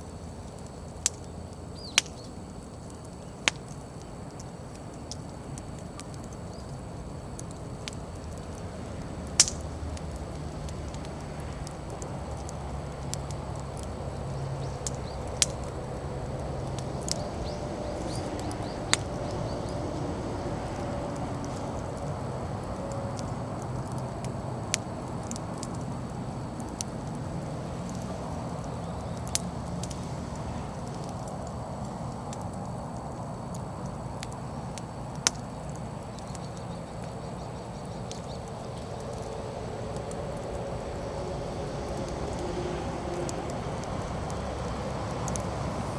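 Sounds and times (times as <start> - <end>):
bonfire crackling: 0.0 - 45.9
wood popping: 4.4 - 19.7
steady low rush: 6.9 - 34.8.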